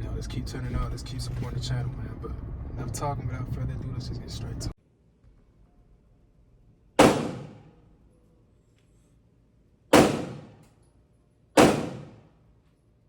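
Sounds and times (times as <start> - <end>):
gunshots with echo: 7.0 - 7.7, 9.9 - 10.6, 11.6 - 12.3.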